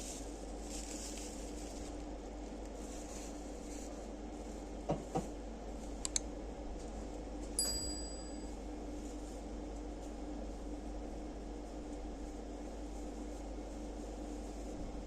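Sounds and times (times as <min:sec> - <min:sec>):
train compartment hum: 0:00.0 - 0:15.0
small clicks: 0:06.0 - 0:06.3
bright metallic ding: 0:07.6 - 0:08.5.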